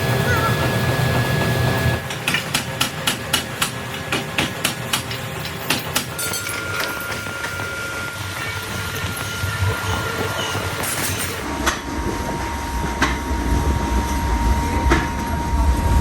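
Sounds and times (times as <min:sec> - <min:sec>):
machine hum: 0:03.6 - 0:16.0.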